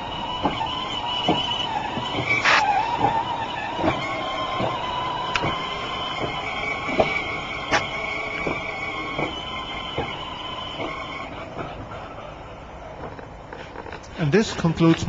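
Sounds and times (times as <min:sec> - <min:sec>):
toy train motor whine: 0:00.0 - 0:11.6.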